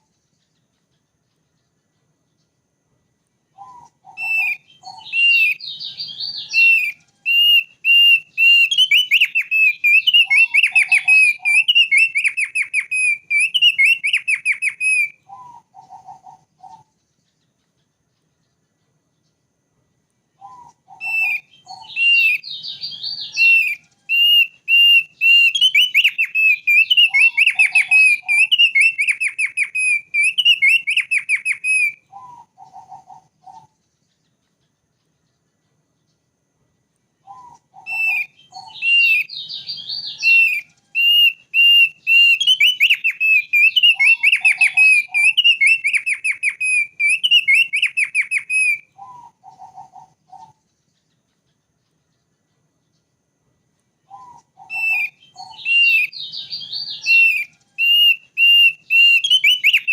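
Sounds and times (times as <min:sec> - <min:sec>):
bird singing high whistled notes: 0:03.5 - 0:17.4, 0:20.4 - 0:34.2, 0:37.2 - 0:50.6, 0:54.0 - 0:59.9.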